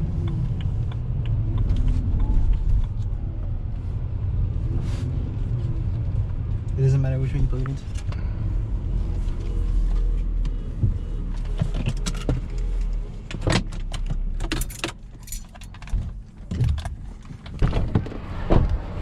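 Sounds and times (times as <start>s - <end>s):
car rumble from inside cabin: 0.0s - 19.0s
sharp clicks and jangling rattles: 13.6s - 17.5s.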